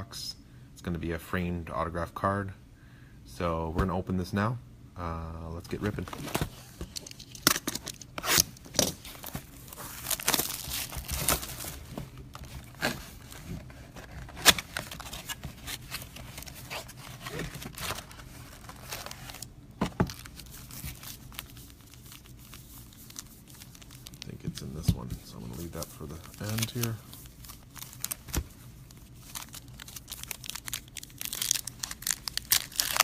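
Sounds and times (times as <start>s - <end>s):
packaging tearing and crinkling: 7.4s - 33.0s.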